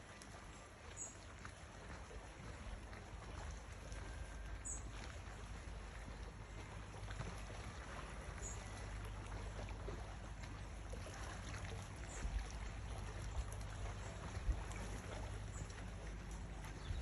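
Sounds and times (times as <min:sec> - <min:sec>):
faint trickling water: 0:00.0 - 0:17.0
low outdoor rumble: 0:00.0 - 0:17.0.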